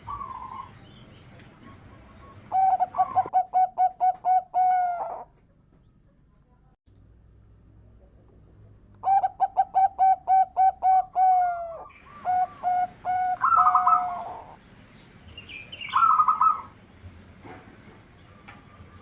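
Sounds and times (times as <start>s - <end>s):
dove cooing: 0.0s - 0.8s, 1.6s - 5.3s, 9.0s - 14.6s, 15.8s - 16.8s
dove rolling trill: 0.0s - 1.0s, 1.6s - 5.3s, 9.0s - 14.6s, 15.5s - 16.8s.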